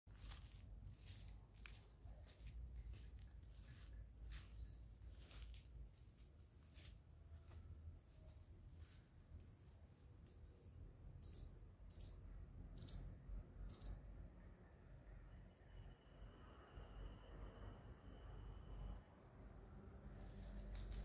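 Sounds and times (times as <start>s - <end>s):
faint bird chirps: 0.9s - 5.4s, 6.6s - 7.5s, 9.4s - 10.6s, 11.2s - 19.3s.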